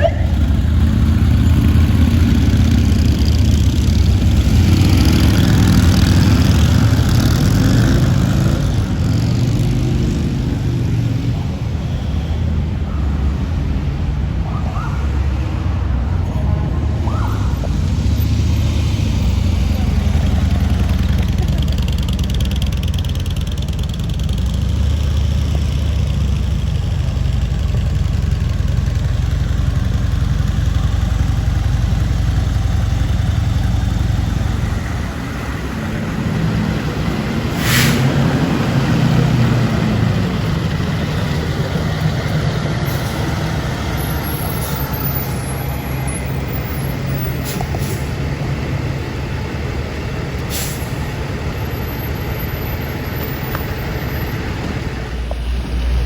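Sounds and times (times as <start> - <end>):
traffic engine rumble: 0.0 - 56.0
brief hiss: 37.5 - 38.1.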